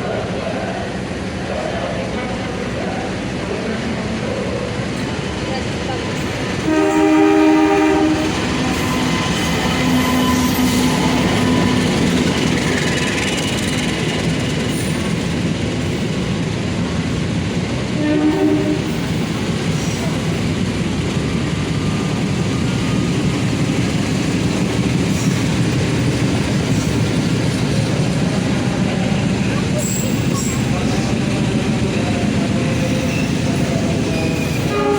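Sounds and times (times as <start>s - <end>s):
train rumbling: 0.0s - 34.9s
train horn: 6.6s - 11.9s, 18.0s - 19.0s, 34.2s - 34.9s.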